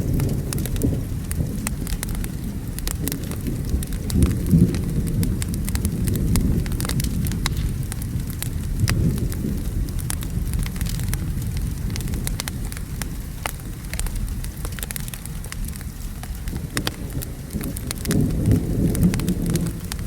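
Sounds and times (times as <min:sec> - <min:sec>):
distant thunder rumbling: 0:00.0 - 0:14.9, 0:16.4 - 0:20.0
steady rain: 0:00.0 - 0:20.0
wood fire crackling and popping: 0:00.0 - 0:20.0.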